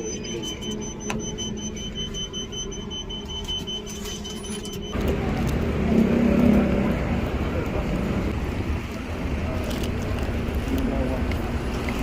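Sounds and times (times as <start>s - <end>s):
rapid high-pitched electronic beeping: 0.0s - 5.0s.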